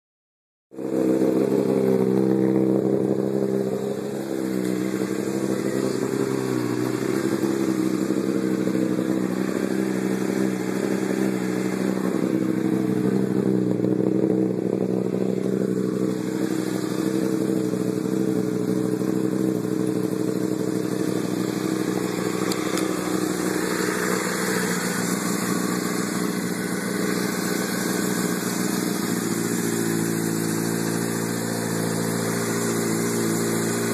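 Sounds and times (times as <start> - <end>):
motorcycle engine idling: 0.7 - 33.9.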